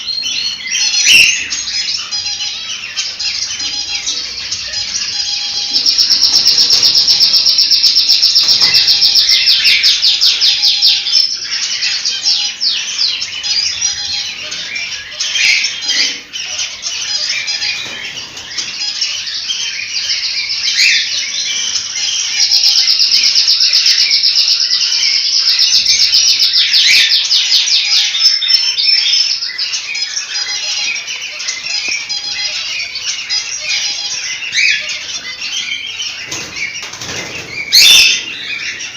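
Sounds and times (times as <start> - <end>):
cockatiels chirping and calling: 0.0 - 38.9
fast repeated high bird notes: 0.8 - 12.6.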